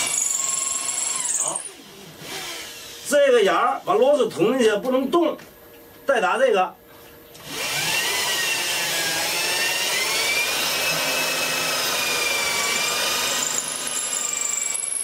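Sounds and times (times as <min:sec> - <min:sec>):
electric drill boring into wood: 0:00.0 - 0:03.1, 0:07.4 - 0:15.0.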